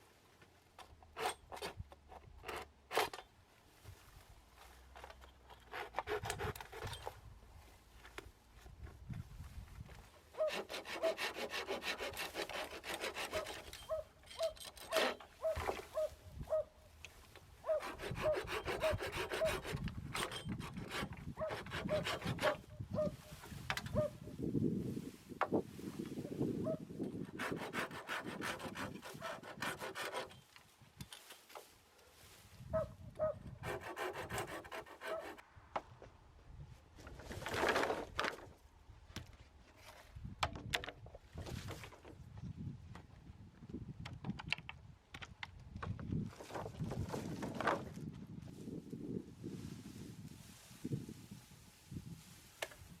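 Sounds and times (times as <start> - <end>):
hand saw cutting bamboo: 1.0 - 3.2, 5.5 - 7.1, 10.4 - 16.1, 17.6 - 22.7, 27.1 - 30.5, 33.5 - 35.4
saw stroke squeak: 13.2 - 16.1.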